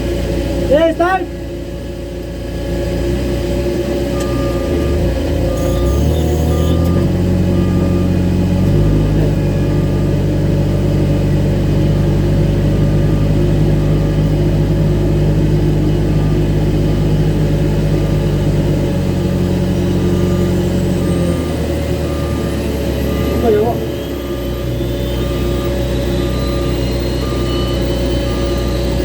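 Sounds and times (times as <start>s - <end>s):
diesel engine running: 0.0s - 29.0s
short electronic beeps: 4.1s - 10.2s, 19.7s - 29.0s
faint high whine: 22.0s - 29.0s.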